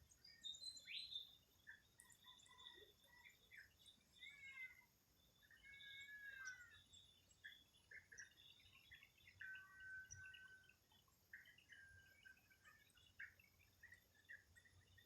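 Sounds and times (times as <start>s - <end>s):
birds chirping and calling: 5.4s - 15.0s.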